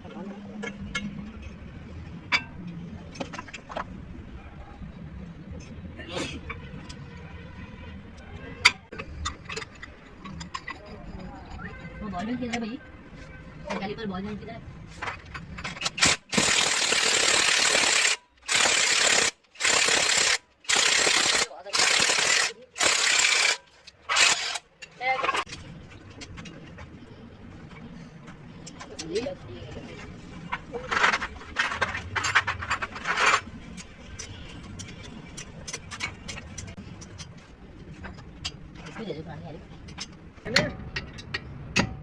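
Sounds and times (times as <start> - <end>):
metal tools clicking and scraping: 8.6 - 12.7, 14.9 - 26.9, 28.6 - 41.9
power tool running: 16.0 - 24.6.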